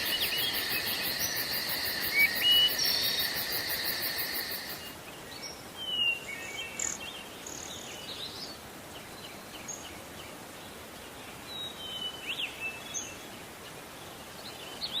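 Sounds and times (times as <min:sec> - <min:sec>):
songbirds chirping: 0:00.0 - 0:04.9
forest ambience hiss: 0:00.0 - 0:05.6, 0:06.3 - 0:09.8.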